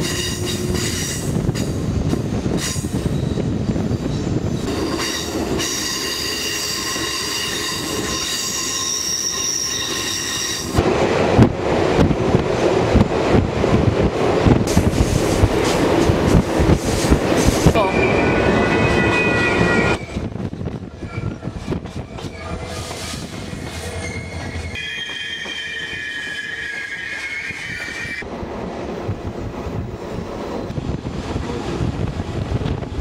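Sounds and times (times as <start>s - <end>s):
train wheel-on-rail noise: 0.0s - 33.0s
steel wheels squealing: 2.6s - 10.8s, 17.8s - 28.2s.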